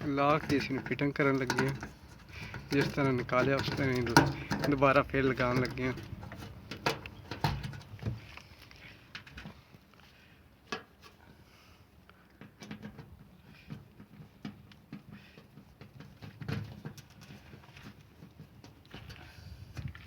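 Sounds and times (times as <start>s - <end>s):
rustling handling noise: 0.0s - 11.4s.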